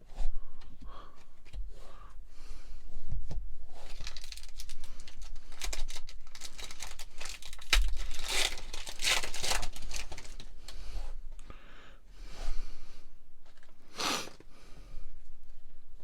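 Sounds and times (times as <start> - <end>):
wrapper crinkling and tearing: 3.9 - 10.6.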